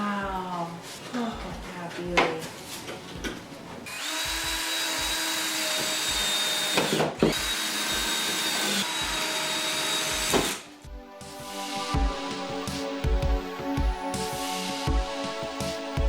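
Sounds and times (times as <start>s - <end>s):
power drill whining: 3.9s - 10.6s.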